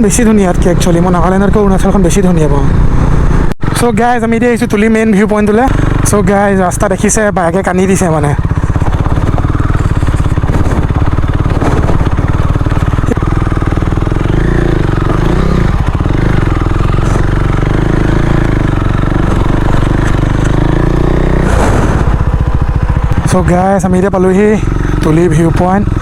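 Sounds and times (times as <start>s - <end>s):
motorcycle engine under load: 0.0s - 26.0s.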